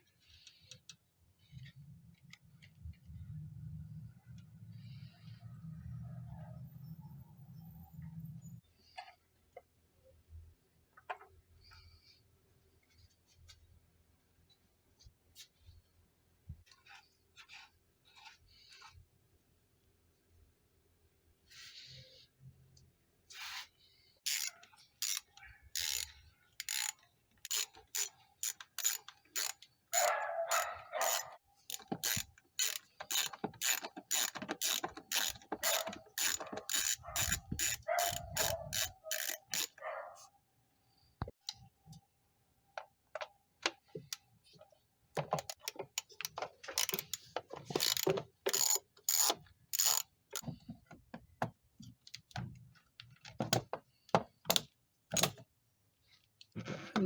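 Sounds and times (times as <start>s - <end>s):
socket ratchet clicking: 24.2s - 39.8s, 45.5s - 50.5s.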